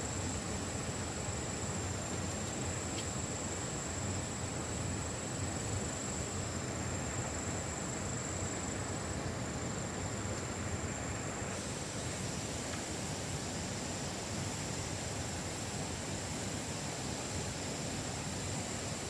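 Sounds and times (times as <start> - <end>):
high insect tone: 0.0 - 19.0
low rushing hiss: 0.0 - 19.0.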